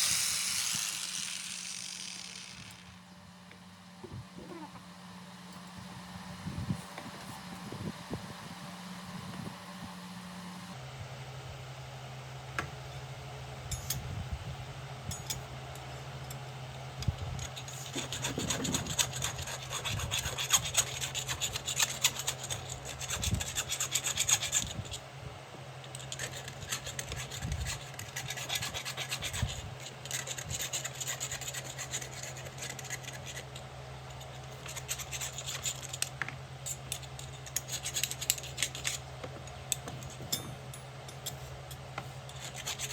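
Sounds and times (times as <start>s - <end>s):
low hum: 0.0s - 3.5s
file rasping on iron: 17.6s - 24.9s, 26.0s - 33.5s, 42.3s - 42.9s.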